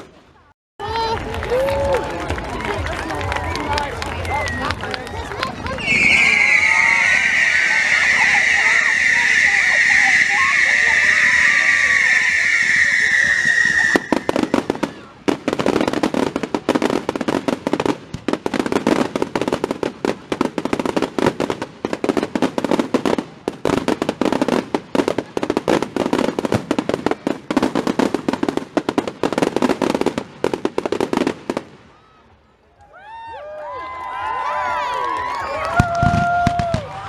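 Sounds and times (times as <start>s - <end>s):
fireworks crackling: 0.0s - 32.0s, 35.3s - 37.0s
high whistle: 5.8s - 14.7s.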